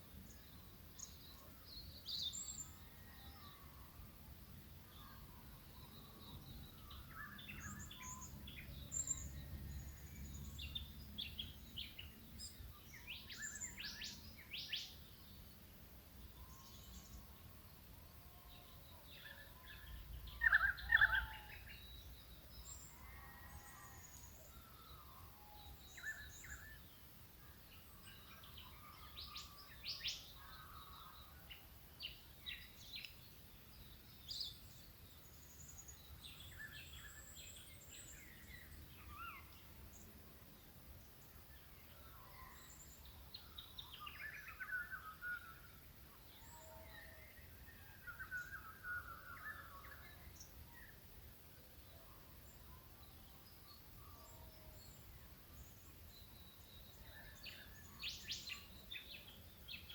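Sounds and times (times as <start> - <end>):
birds chirping and trilling: 18.8 - 26.9.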